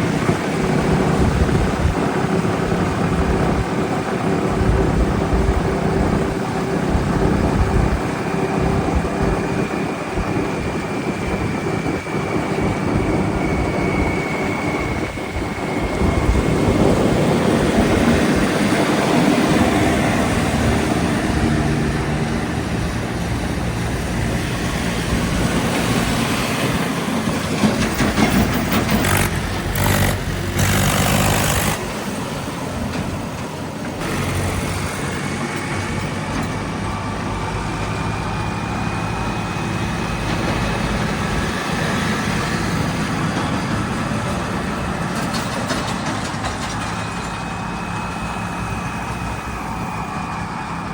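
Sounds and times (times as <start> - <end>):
diesel engines running: 0.0 - 50.9.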